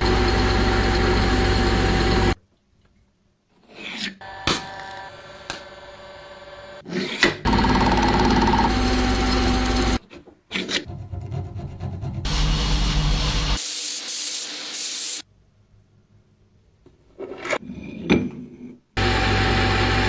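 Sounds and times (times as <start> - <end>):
tool humming: 0.0 - 2.4, 7.5 - 10.0, 12.3 - 15.2.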